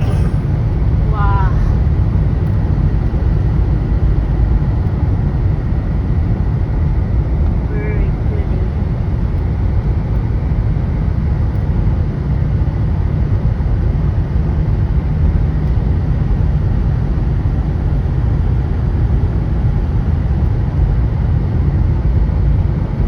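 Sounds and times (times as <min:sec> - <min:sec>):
car interior rumble: 0:00.0 - 0:11.9
road and wind noise: 0:00.0 - 0:23.0.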